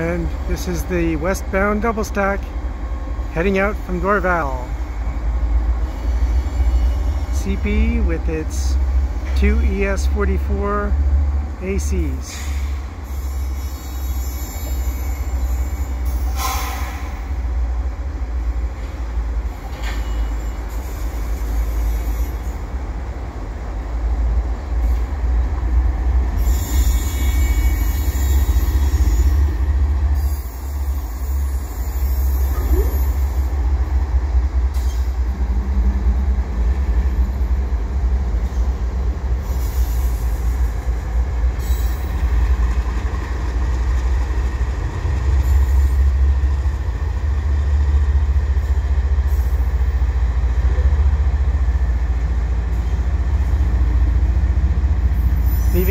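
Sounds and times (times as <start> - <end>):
diesel locomotive engines running: 0.0 - 55.9
high wheel squeal: 12.3 - 17.2, 19.9 - 22.6, 26.4 - 33.6, 41.6 - 42.8, 55.1 - 55.9
wheels clattering on rail: 18.6 - 22.8, 24.8 - 55.8.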